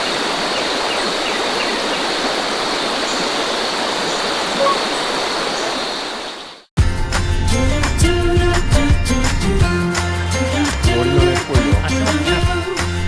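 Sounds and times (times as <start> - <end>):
mountain stream rushing: 0.0 - 6.7.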